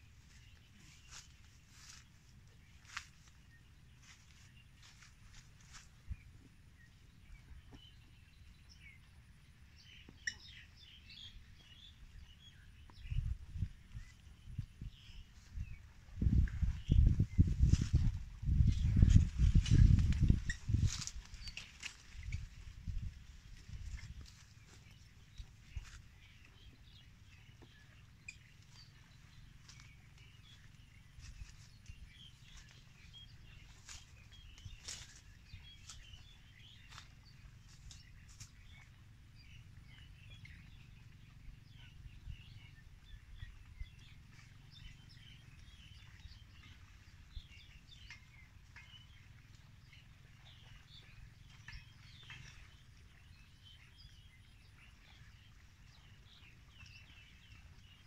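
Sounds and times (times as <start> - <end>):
faint bird chirps: 9.9 - 58.0.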